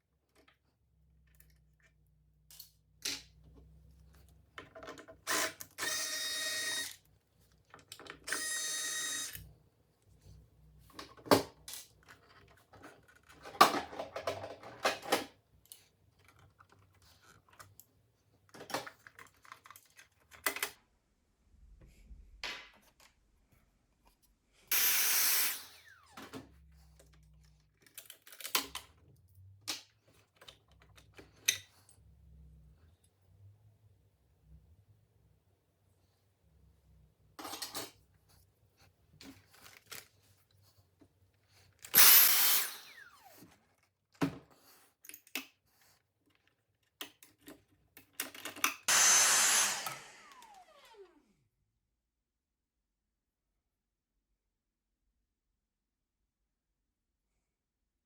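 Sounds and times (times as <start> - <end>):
clicks and knocks of small tools: 1.3 - 8.5, 18.5 - 20.8, 25.9 - 32.0, 37.4 - 38.0, 46.2 - 49.0
small motor whirring: 24.7 - 26.2, 42.0 - 43.5, 48.9 - 51.3.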